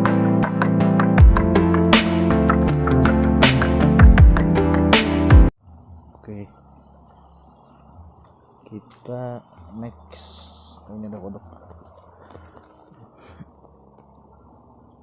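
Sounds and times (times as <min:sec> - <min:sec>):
crickets and insects shrilling: 0:05.6 - 0:15.0
short low calls: 0:08.6 - 0:13.6.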